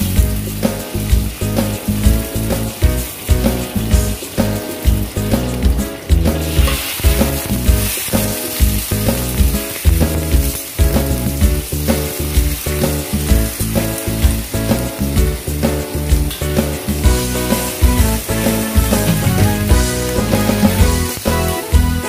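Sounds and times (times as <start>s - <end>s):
background music with beat: 0.0s - 22.0s
meat sizzling in a wok: 0.0s - 22.0s
metal spatula stirring: 6.3s - 10.9s.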